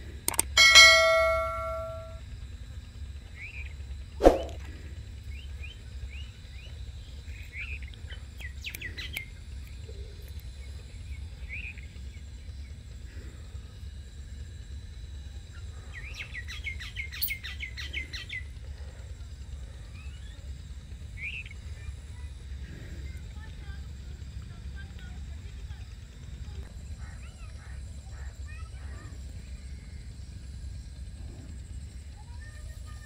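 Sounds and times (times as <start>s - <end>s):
birds chirping: 0.5s - 2.2s, 5.2s - 12.9s.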